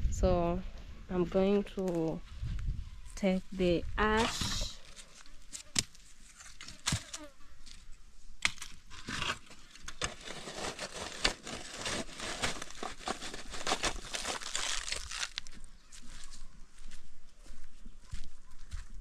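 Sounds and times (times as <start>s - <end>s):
spade scraping ash: 8.5s - 14.4s.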